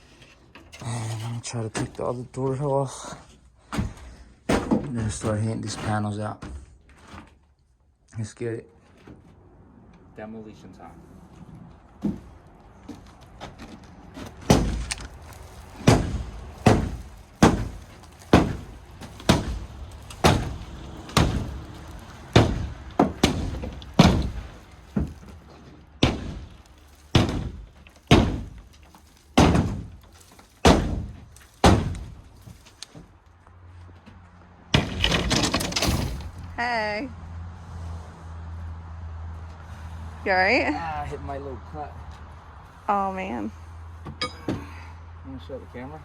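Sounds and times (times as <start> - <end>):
bangs on shed wall panels: 3.6 - 7.2, 14.1 - 33.1, 34.7 - 36.5.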